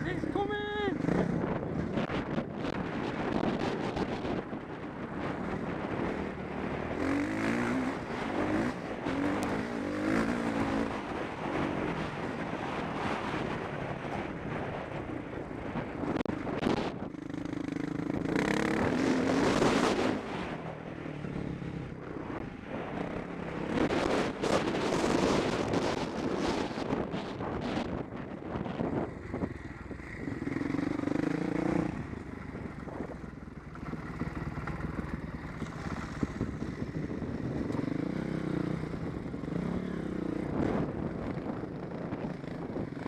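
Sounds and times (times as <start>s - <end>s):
motocross bike engine revving: 5.9s - 11.6s, 17.3s - 20.4s, 28.9s - 41.5s.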